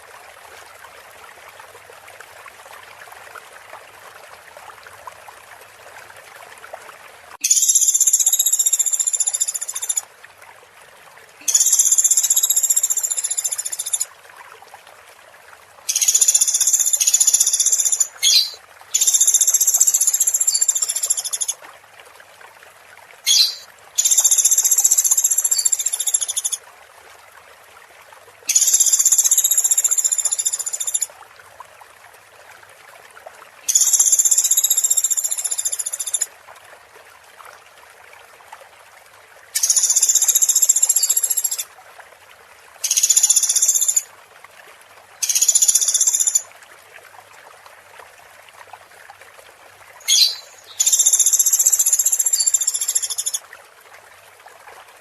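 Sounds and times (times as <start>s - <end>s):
running water hiss: 7.2s - 10.1s, 11.3s - 14.2s, 15.8s - 21.6s, 23.2s - 26.6s, 28.5s - 31.1s, 33.6s - 36.3s, 39.5s - 41.7s, 42.8s - 44.1s, 45.1s - 46.6s, 49.8s - 53.4s.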